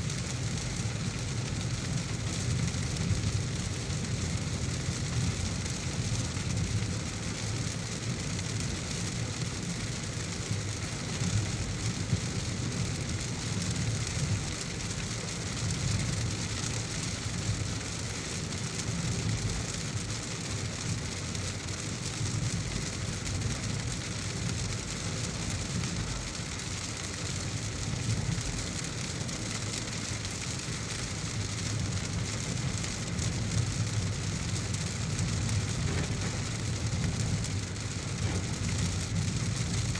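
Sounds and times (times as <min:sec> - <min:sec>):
car engine and tyres rumbling: 0:00.0 - 0:39.9
heavy rain on a car: 0:00.0 - 0:39.9.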